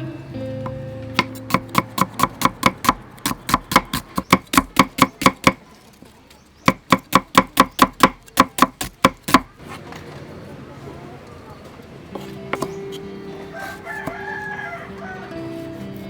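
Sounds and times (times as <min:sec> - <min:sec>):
knife chopping on cutting board: 0:01.1 - 0:05.6, 0:06.6 - 0:09.5.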